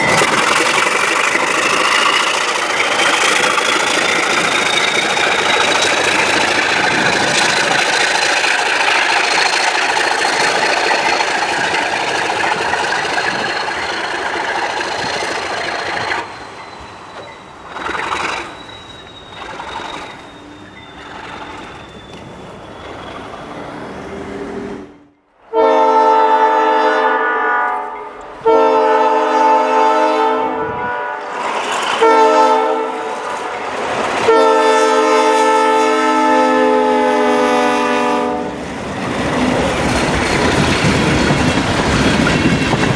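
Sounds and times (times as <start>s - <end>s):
train passing: 0.0s - 42.9s
locomotive horn blasts: 25.5s - 31.3s, 32.0s - 38.6s.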